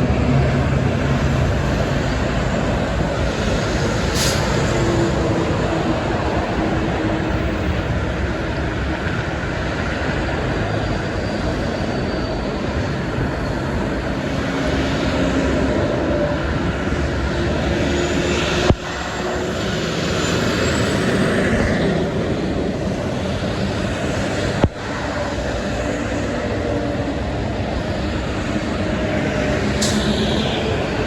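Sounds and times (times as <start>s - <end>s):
heavy highway traffic: 0.0s - 31.0s
trucks passing at speed: 0.0s - 31.0s.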